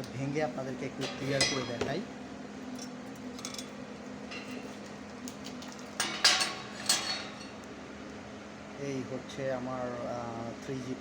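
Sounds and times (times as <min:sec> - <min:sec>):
steel clanking on steel: 0:01.0 - 0:01.8, 0:06.0 - 0:07.5.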